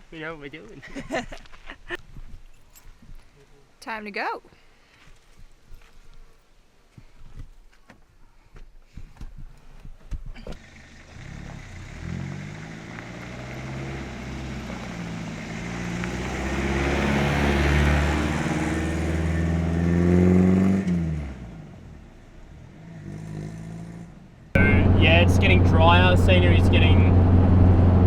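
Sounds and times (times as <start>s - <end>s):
vehicle engine revving: 10.6s - 28.0s.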